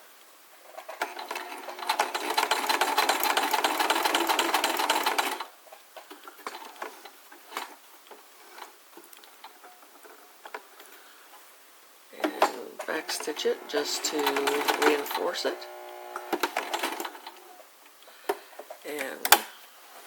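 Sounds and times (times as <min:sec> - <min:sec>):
sewing machine stitching: 0:00.8 - 0:05.5, 0:12.2 - 0:17.6.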